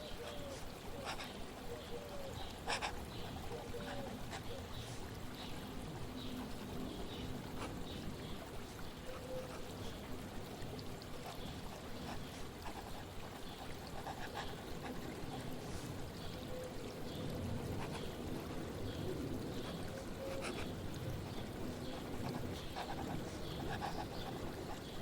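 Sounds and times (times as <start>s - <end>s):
water trickling and pouring: 0.0s - 25.0s.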